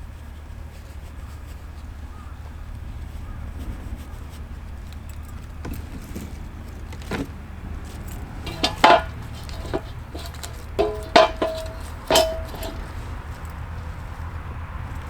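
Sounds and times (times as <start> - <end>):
objects clinking and knocking: 5.6 - 13.5.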